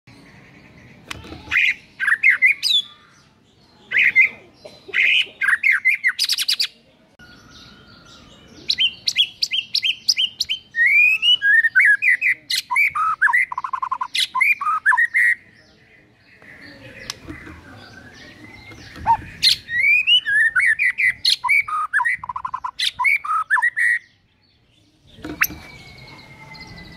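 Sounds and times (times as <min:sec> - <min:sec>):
bird singing varied whistles: 0:07.5 - 0:15.4, 0:18.0 - 0:24.0, 0:25.2 - 0:26.9.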